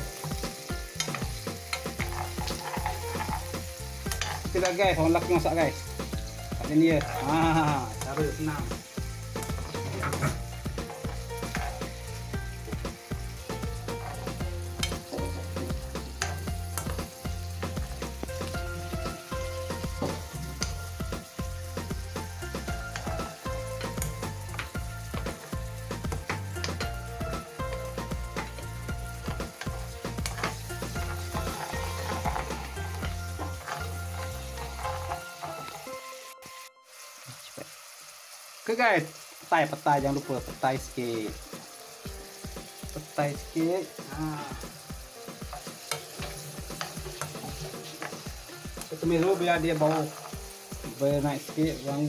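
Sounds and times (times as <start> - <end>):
food sizzling in hot oil: 0.0 - 52.0
spatula scraping a wok: 0.2 - 4.8, 6.0 - 8.0, 9.0 - 18.6, 27.8 - 36.0, 45.3 - 51.0.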